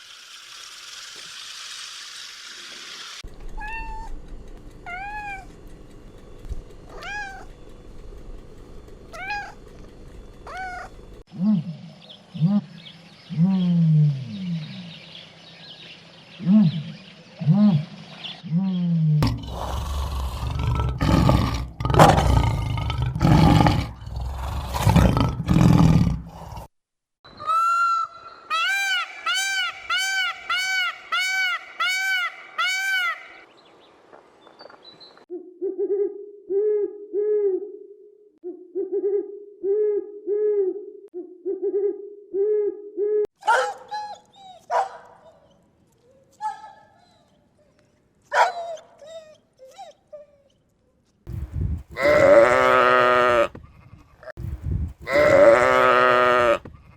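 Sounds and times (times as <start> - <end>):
chirps and clicks: 3.2 - 11.2, 43.4 - 50.8
low hoots: 10.3 - 15.1, 16.4 - 26.6, 35.3 - 43.3
loud rough animal roar: 19.2 - 26.7, 52.0 - 53.5, 55.0 - 56.6
quick rising-and-falling animal calls: 27.3 - 33.5.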